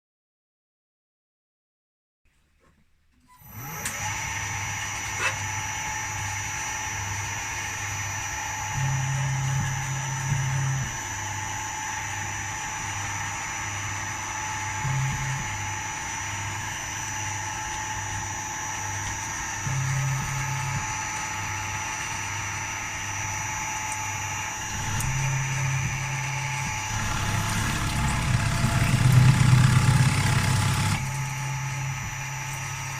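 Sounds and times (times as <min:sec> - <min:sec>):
milling machine spindle whine: 0:03.4 - 0:32.9
deeper machine drone: 0:08.3 - 0:32.9.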